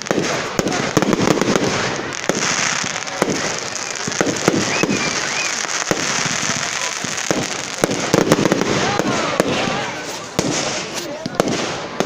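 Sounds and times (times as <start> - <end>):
fireworks bangs and crackles: 0.0 - 12.0
fireworks hiss: 0.0 - 12.0.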